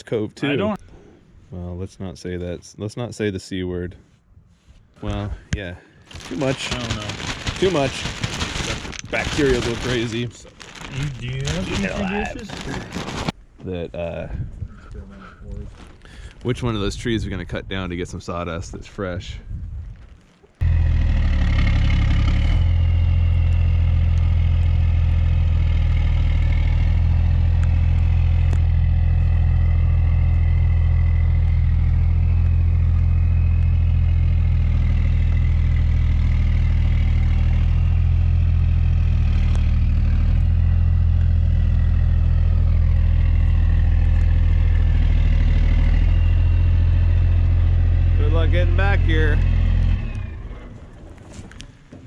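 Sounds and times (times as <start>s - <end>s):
vehicle engine running: 6.1s - 13.3s, 20.6s - 51.4s.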